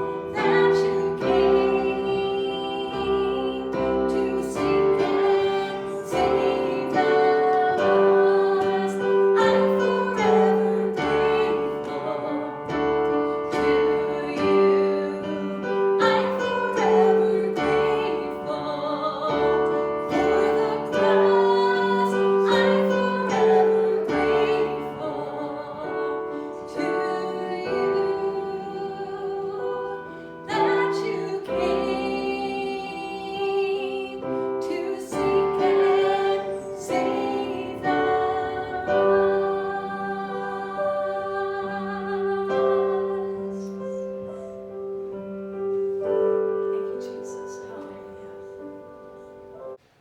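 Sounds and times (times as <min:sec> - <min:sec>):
person singing slow song: 0:00.0 - 0:44.8
piano accompaniment: 0:00.0 - 0:50.0.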